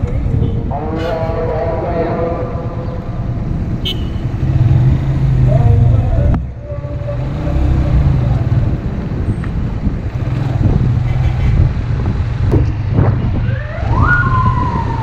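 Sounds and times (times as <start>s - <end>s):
motorcycle engine: 2.4s - 14.4s
wind noise: 7.9s - 15.0s
police siren: 13.4s - 15.0s.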